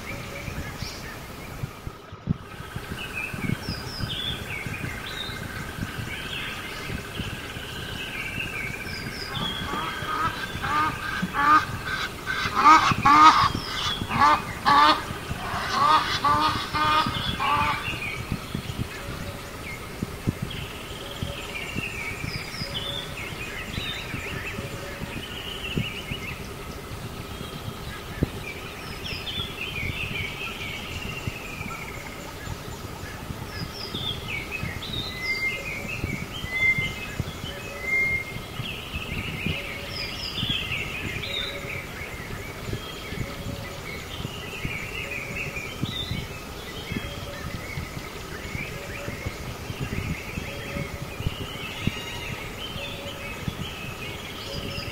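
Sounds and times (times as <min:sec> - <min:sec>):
small birds chirping and whistling: 0:00.0 - 0:54.9
steady background hiss: 0:00.0 - 0:54.9
loud honk-like bird calls: 0:09.4 - 0:18.0.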